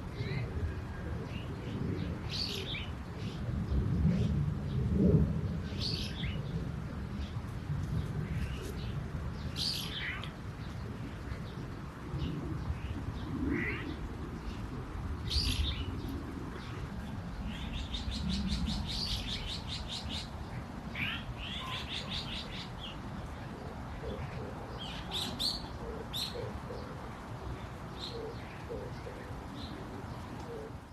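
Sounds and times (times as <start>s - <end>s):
songbirds chirping: 0.0s - 30.9s
dove cooing: 11.1s - 30.9s.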